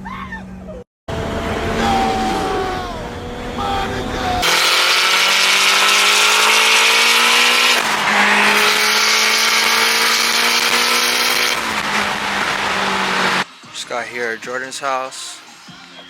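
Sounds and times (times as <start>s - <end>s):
car engine accelerating hard: 1.1s - 13.5s
heavy rushing noise: 1.1s - 13.5s.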